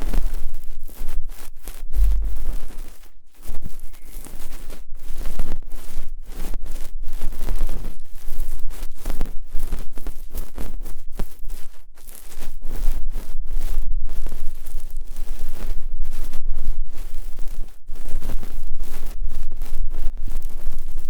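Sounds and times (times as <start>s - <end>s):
ear pick scraping: 0.0s - 21.0s
steady low rumble: 1.6s - 6.2s.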